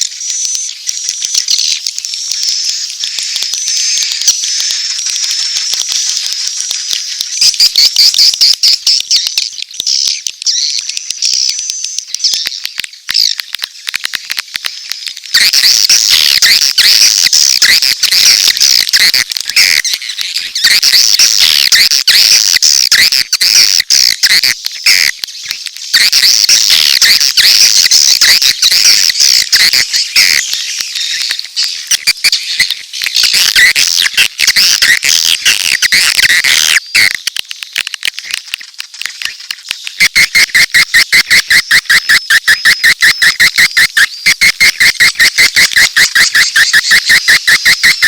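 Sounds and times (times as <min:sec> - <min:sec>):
swiftlets twittering and clicking: 0:00.0 - 0:48.0.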